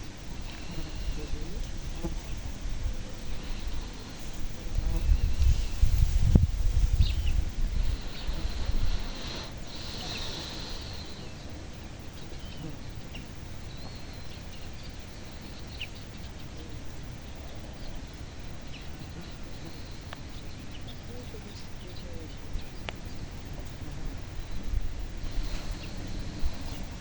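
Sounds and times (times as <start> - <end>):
wind rumble on microphone: 0.0 - 10.0, 22.6 - 27.0
small birds chirping: 0.0 - 27.0.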